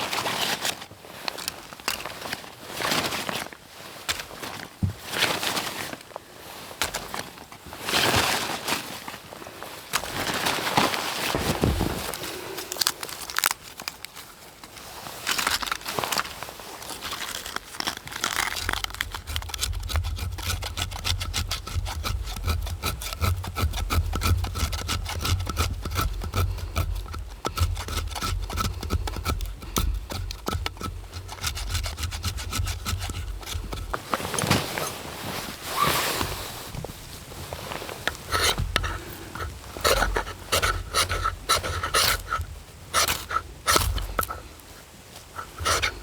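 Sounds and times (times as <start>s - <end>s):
rustles: 0.0s - 46.0s
hand tool rasping wood: 17.2s - 46.0s.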